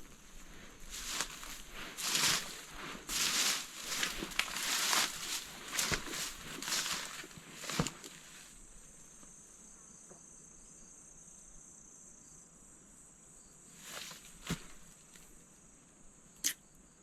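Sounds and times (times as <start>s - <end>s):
rustling steps through brush: 0.0s - 8.6s, 13.8s - 15.3s
insects droning: 0.0s - 17.0s.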